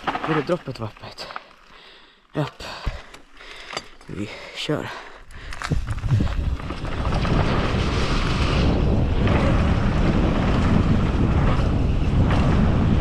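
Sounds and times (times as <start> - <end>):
wind buffeting microphone: 5.3 - 13.0.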